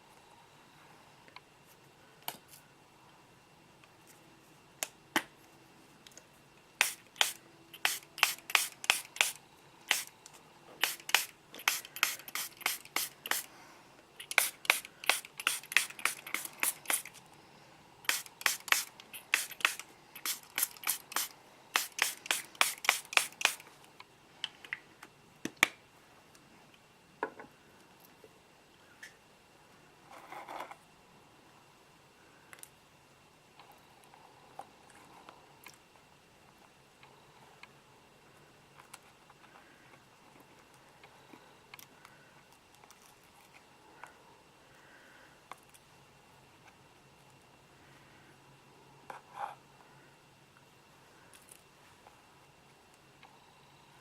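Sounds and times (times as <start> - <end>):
trigger spray bottle spraying: 6.8 - 10.1, 10.8 - 13.5, 14.2 - 17.2, 18.0 - 23.7.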